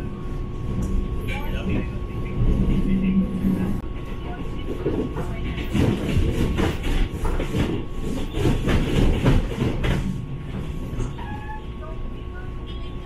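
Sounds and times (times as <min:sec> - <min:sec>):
train rumbling on rails: 0:00.0 - 0:13.0
clacks and rattles: 0:04.7 - 0:10.2.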